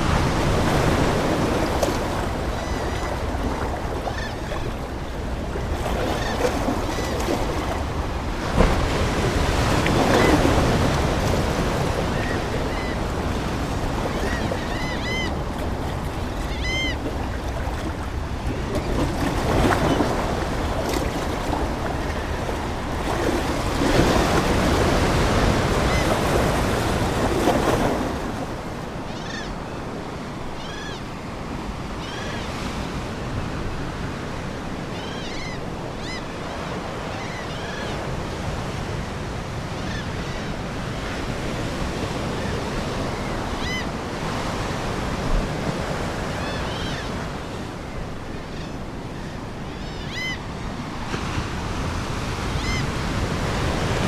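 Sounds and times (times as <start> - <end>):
ocean waves washing in: 0.0 - 54.0
seagulls calling: 0.3 - 31.2, 34.8 - 38.2, 42.2 - 44.5, 45.8 - 51.0, 52.5 - 53.1.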